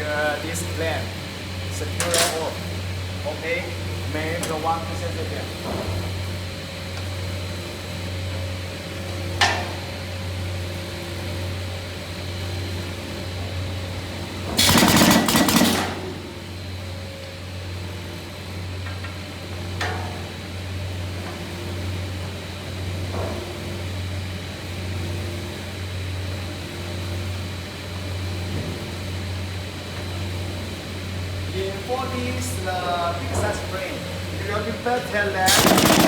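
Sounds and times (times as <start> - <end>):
loud rushing burst: 14.6 - 16.1, 35.5 - 36.0.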